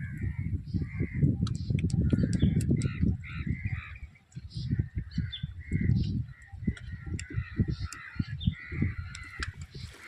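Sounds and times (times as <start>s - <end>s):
crows cawing: 2.2s - 4.1s, 5.1s - 10.0s.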